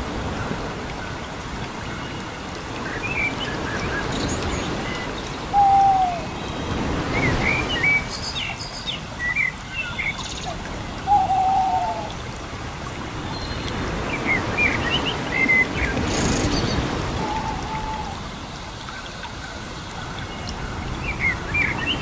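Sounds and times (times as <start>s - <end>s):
lower longer bird call: 5.5s - 6.4s, 11.1s - 12.2s, 17.2s - 18.2s
whistled bird chirps: 5.6s - 6.2s.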